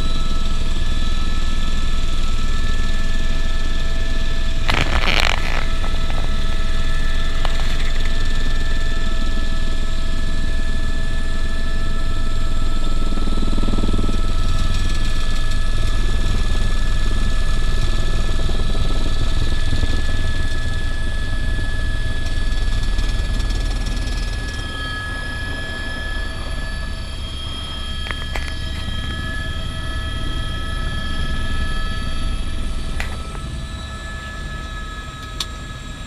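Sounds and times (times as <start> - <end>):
helicopter rotor rumble: 0.0 - 36.0
turbine whine: 0.0 - 36.0.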